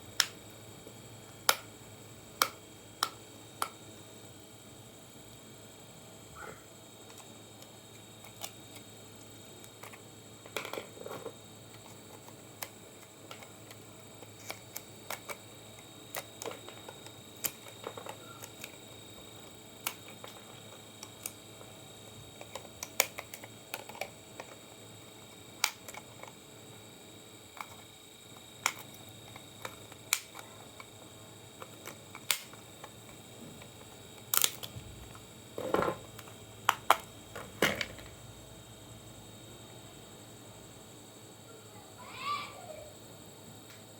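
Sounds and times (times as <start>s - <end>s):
faint steady hiss: 0.0s - 43.9s
small parts and tools clicking: 7.0s - 8.9s, 9.6s - 21.7s, 22.4s - 24.6s, 25.2s - 26.4s, 27.5s - 31.0s, 31.6s - 38.2s.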